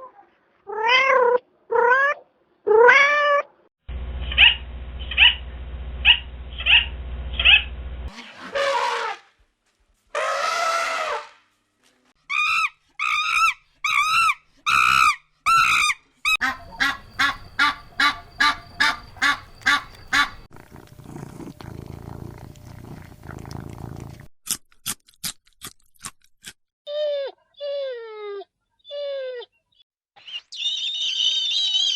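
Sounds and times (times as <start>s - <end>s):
rising and falling animal calls: 16.4s - 20.5s
sharp high chirps: 16.4s - 20.5s
short pulsed animal calls: 16.4s - 20.5s
rough rasping call: 16.4s - 23.0s.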